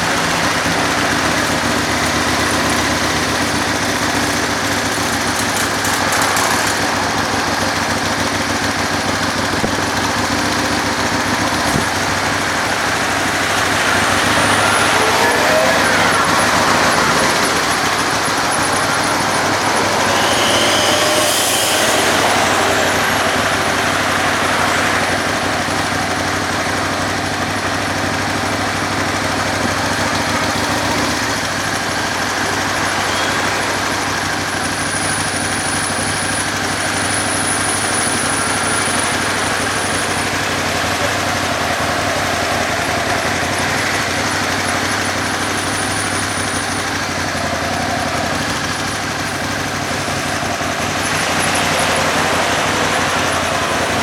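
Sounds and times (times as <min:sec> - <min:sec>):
city traffic noise: 0:00.0 - 0:54.0
motorcycle engine running: 0:00.0 - 0:54.0
thin high whine: 0:04.7 - 0:54.0.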